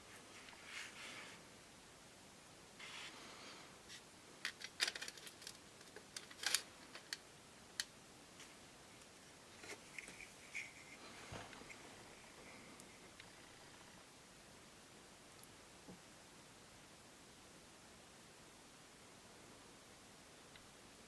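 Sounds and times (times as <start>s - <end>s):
small metal parts clicking: 4.4s - 7.2s.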